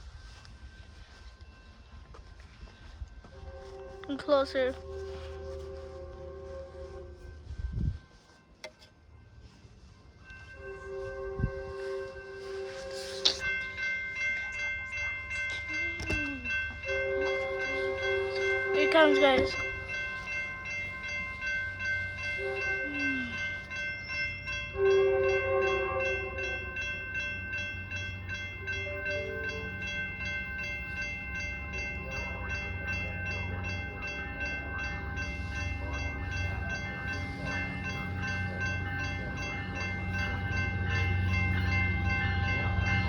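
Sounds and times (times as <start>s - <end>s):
locomotive engine rumble: 0.0s - 43.0s
steady high ringing: 0.0s - 43.0s
train horn blasts: 3.3s - 7.8s, 10.5s - 13.4s, 16.8s - 20.2s, 21.7s - 23.7s, 24.6s - 30.0s.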